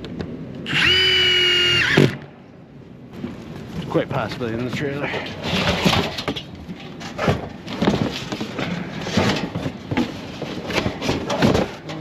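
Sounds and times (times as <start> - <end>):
knocks and bumps of building work: 4.6 - 12.0.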